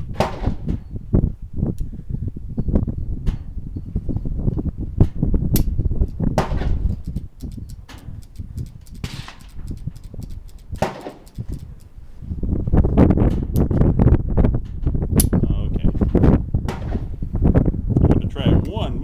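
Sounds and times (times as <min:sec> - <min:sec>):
steady low rumble: 0:00.0 - 0:19.0
clicks and knocks: 0:05.1 - 0:12.0.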